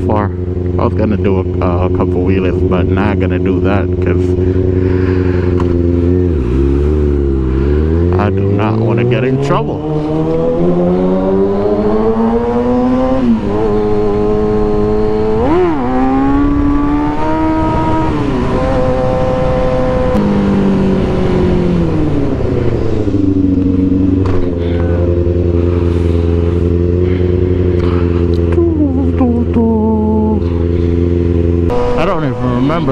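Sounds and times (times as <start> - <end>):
motorcycle engine revving: 0.0 - 32.9
wind rush: 9.8 - 24.6.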